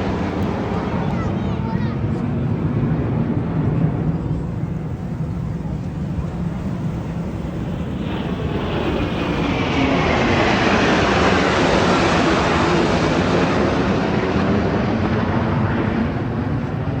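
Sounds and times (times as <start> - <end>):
high falling jet whine: 0.0 - 17.0
jet aircraft roaring past: 0.0 - 17.0.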